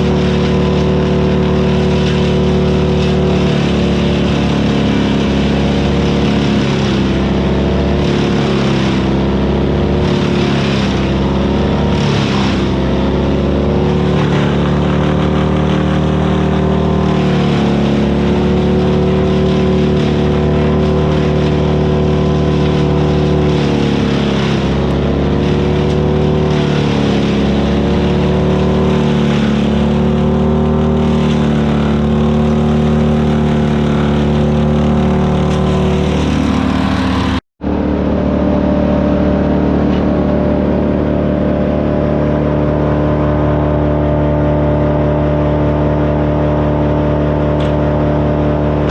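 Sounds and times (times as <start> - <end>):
wood chipper engine running: 0.0 - 48.9.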